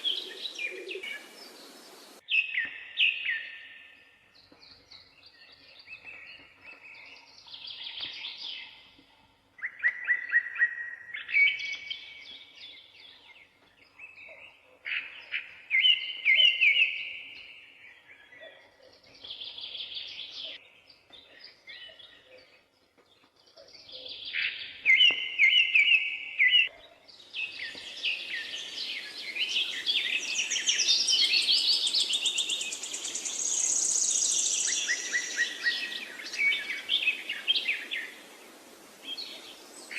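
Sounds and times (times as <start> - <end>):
steady hiss: 0.0 - 2.2, 31.8 - 39.9
dense high birdsong: 0.0 - 9.1, 11.2 - 39.9
songbird trilling: 27.4 - 38.2.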